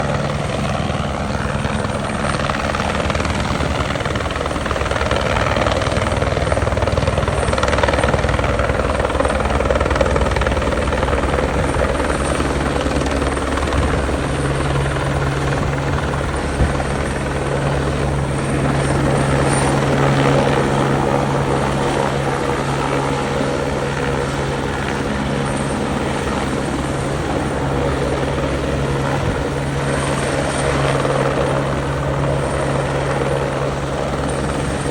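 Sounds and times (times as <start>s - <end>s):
helicopter rotor beat: 0.0s - 34.9s.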